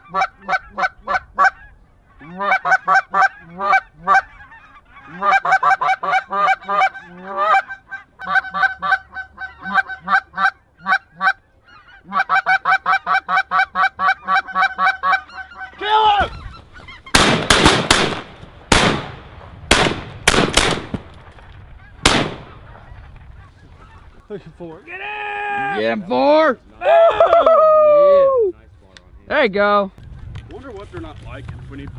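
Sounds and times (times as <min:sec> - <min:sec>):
goose honking: 0:00.0 - 0:17.2
shotgun blasts: 0:17.1 - 0:21.4, 0:22.0 - 0:22.7.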